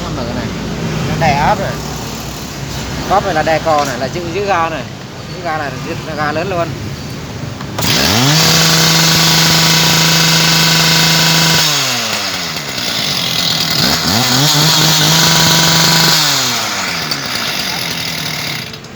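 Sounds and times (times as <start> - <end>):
small petrol saw engine revving: 7.8 - 18.9.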